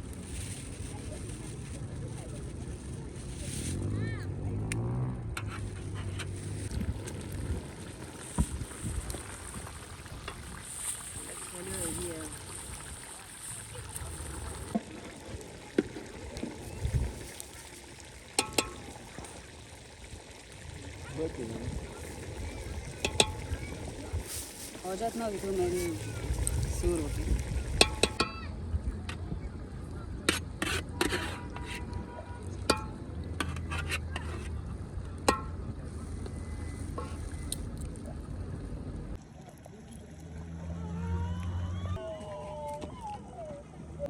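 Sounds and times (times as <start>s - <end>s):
metal cookware clinking: 18.3s - 19.1s, 23.0s - 23.6s, 27.8s - 28.4s, 32.7s - 34.5s, 35.3s - 35.6s.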